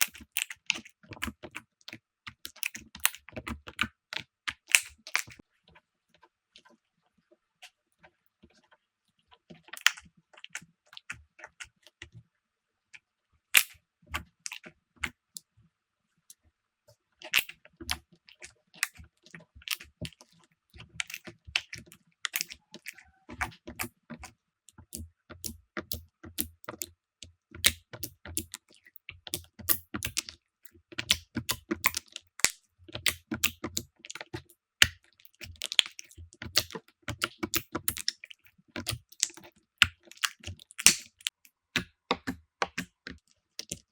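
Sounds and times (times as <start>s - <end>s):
slime clicking and popping: 4.5s - 5.4s, 13.6s - 13.8s, 21.0s - 26.9s, 27.5s - 30.3s, 30.9s - 43.9s.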